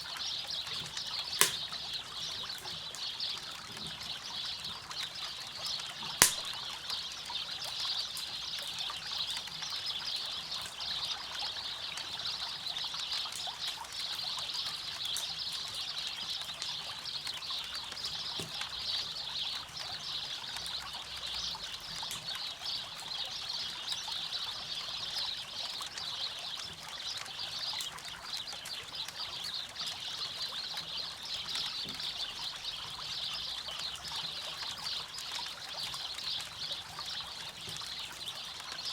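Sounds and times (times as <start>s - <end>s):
crackling campfire: 0.0s - 10.8s, 11.4s - 31.6s
sharp crack of burning wood: 0.8s - 3.2s, 6.2s - 6.7s
river water running: 1.4s - 2.4s.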